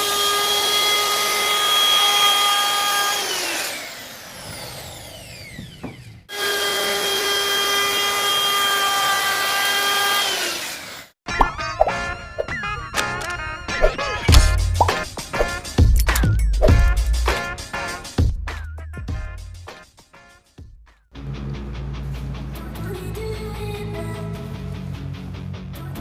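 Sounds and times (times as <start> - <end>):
wood router motor whining: 0.0 - 11.2.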